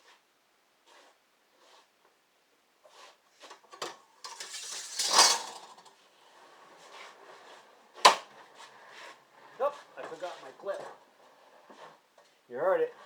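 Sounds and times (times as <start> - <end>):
rattling scrape: 3.0 - 6.0
small objects clinking and clattering: 4.2 - 5.9.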